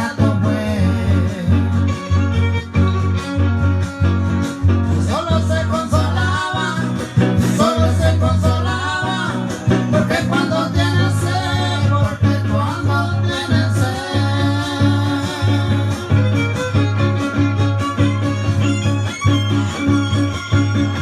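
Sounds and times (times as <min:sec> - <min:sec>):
person singing: 0:00.0 - 0:02.0, 0:04.9 - 0:16.8
string trio playing: 0:00.0 - 0:21.0.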